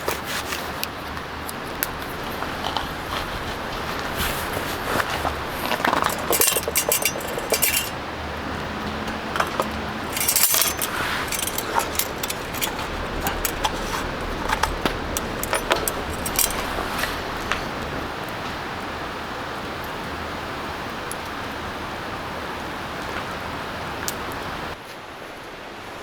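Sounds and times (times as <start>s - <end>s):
small hard objects clinking: 4.6s - 8.0s, 9.1s - 17.8s.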